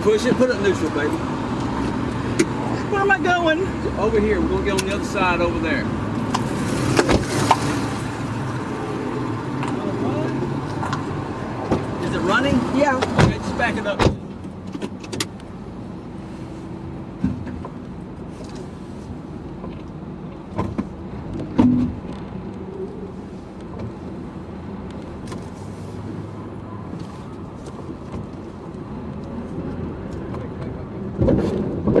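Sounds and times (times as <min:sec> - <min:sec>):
car engine running: 0:00.0 - 0:31.2
knocks and clunks: 0:06.2 - 0:07.9, 0:09.6 - 0:15.4, 0:20.4 - 0:22.4.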